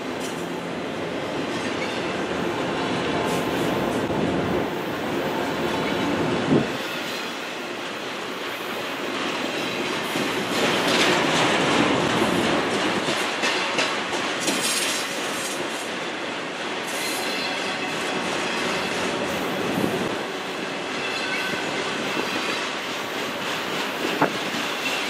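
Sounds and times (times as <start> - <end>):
freight train cars rolling past: 0.0 - 25.0
steel wheels clattering over rail joints: 6.6 - 19.4.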